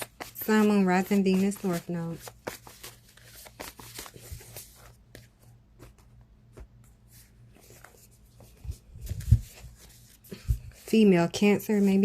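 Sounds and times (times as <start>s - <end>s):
cards shuffling and rustling: 0.0s - 12.0s.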